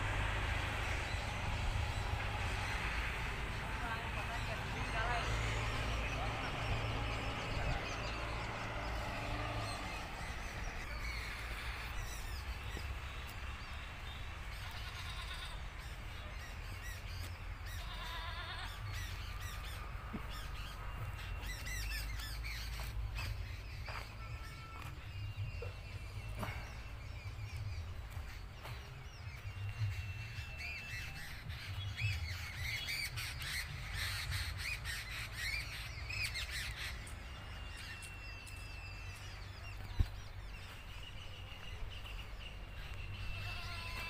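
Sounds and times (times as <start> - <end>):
birds calling and chirping: 0.0 - 44.0.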